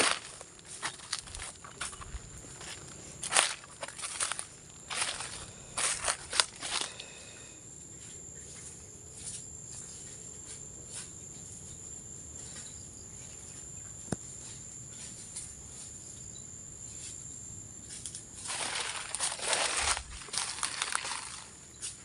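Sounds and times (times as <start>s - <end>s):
footsteps crunching on dry leaves: 0.0s - 7.4s, 18.4s - 21.6s
crickets droning: 0.0s - 22.0s
faint rustling: 18.4s - 22.0s.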